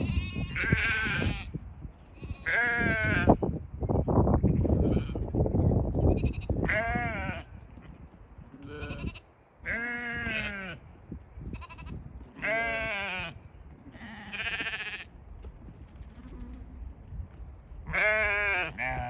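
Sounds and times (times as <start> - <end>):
sheep bleating: 0.0 - 1.5, 2.2 - 3.4, 6.1 - 7.5, 8.6 - 10.8, 11.6 - 13.4, 14.0 - 15.1, 17.9 - 19.0
wind rumbling on microphone: 0.0 - 19.0.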